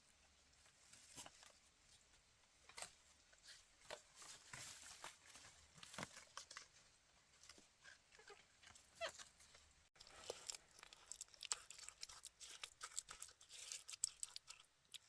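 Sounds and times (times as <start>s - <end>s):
rustling: 0.0s - 14.6s.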